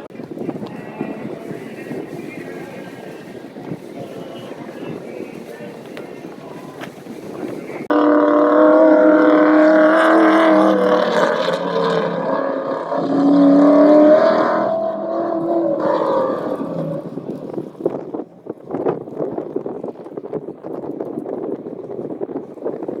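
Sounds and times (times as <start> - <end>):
vehicle engine at high revs: 7.9 - 18.0.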